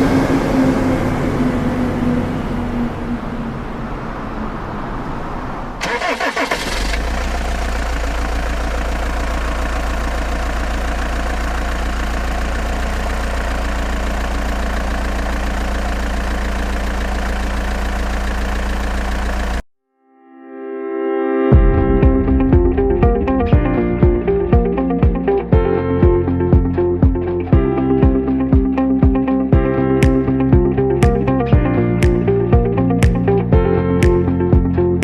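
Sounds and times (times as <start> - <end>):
dump truck engine: 0.0 - 4.6, 5.8 - 19.6.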